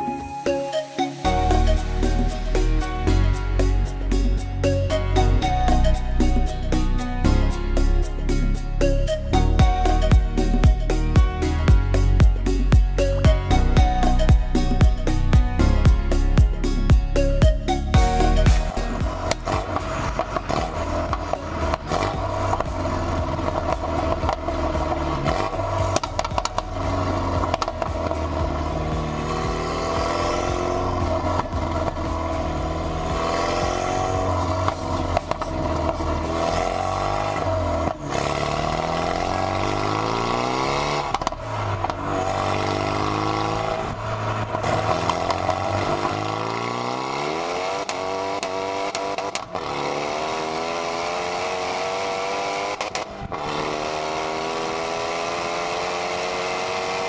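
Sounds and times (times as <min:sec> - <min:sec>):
car engine accelerating: 0:01.3 - 0:57.0.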